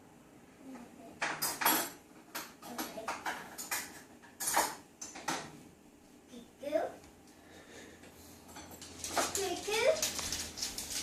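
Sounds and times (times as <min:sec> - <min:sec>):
dishes and cutlery clinking: 0:01.2 - 0:05.6, 0:08.4 - 0:11.0.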